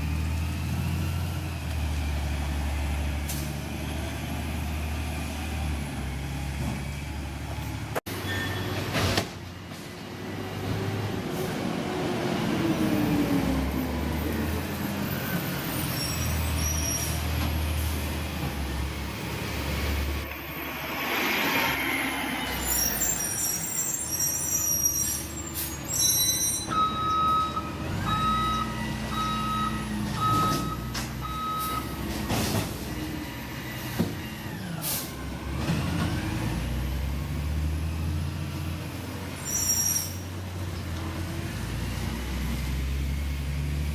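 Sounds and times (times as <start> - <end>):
reverse alarm beeping: 26.6 - 32.0.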